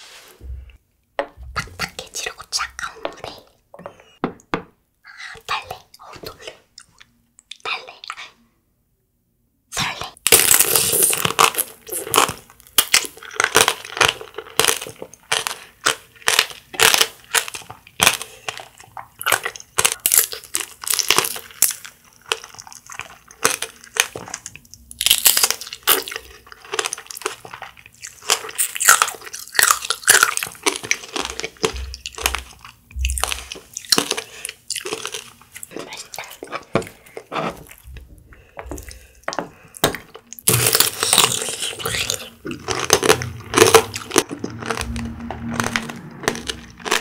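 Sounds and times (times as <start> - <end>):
sugar shell crunching: 10.3 - 47.0
wet chewing of fruit: 10.6 - 47.0.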